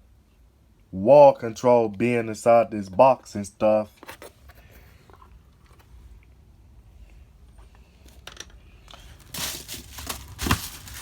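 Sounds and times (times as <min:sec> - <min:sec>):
packaging crinkling and rustling: 0:08.0 - 0:11.0.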